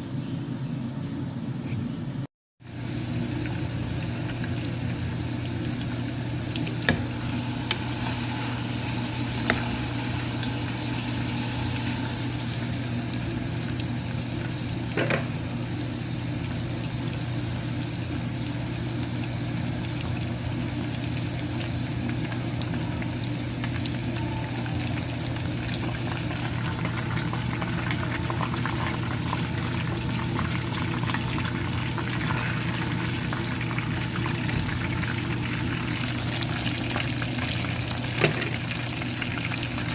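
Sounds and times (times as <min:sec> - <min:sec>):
food sizzling in hot oil: 0:02.6 - 0:39.9.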